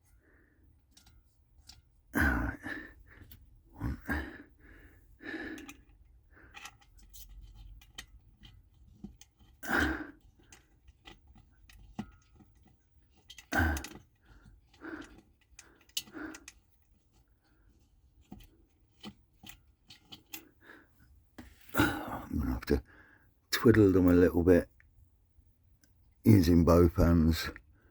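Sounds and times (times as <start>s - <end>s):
man grunting and sighing: 2.2s - 5.6s, 13.5s - 14.0s, 21.7s - 22.7s
small metal parts clicking: 10.3s - 16.9s.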